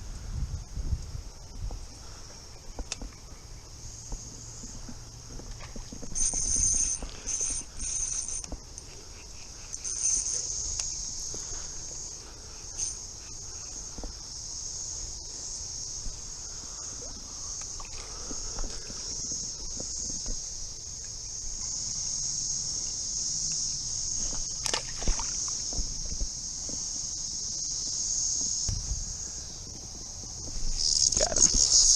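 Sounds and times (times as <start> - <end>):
cicadas buzzing: 0.0 - 31.9
knocks and rustles: 28.4 - 29.1.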